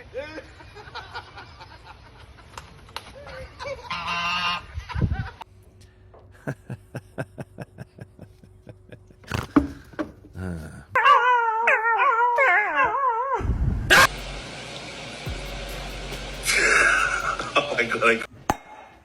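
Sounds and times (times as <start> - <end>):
dog howling: 11.0 - 14.1
steady hiss: 14.0 - 18.3.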